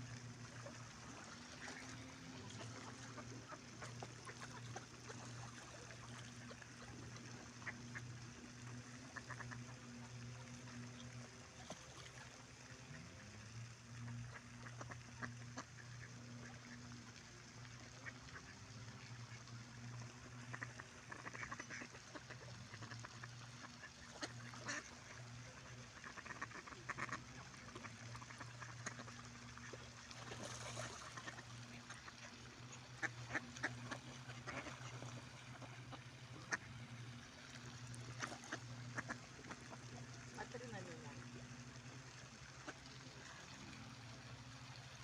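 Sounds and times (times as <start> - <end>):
steady low hum: 0.0 - 45.0
ducks quacking: 20.4 - 29.7, 30.8 - 36.7, 38.1 - 41.1.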